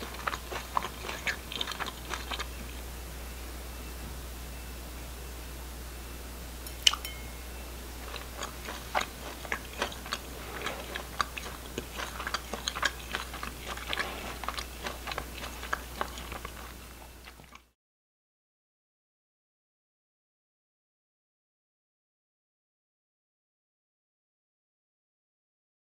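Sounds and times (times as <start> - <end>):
crisp crunching while chewing: 0.0 - 2.9, 8.0 - 17.7
sharp clink with ring: 6.6 - 7.5.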